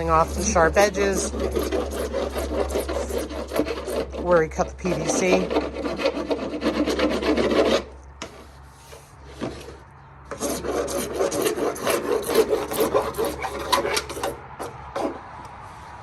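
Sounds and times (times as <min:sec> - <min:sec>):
file rasping on plastic pipe: 0:00.0 - 0:15.3.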